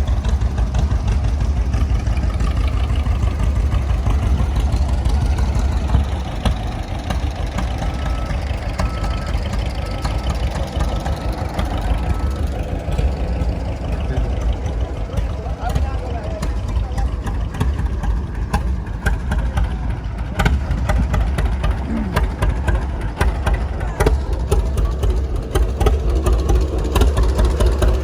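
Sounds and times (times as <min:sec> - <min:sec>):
old engine chugging: 0:00.0 - 0:28.0.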